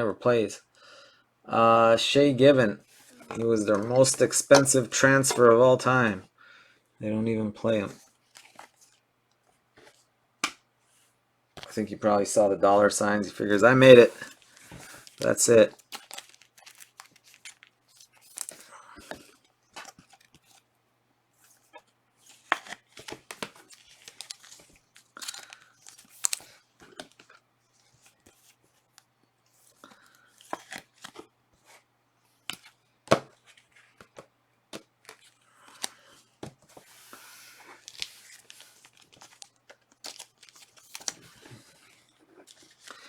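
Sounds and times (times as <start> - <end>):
wrappers ripping and crinkling: 14.1 - 18.6, 37.7 - 41.2.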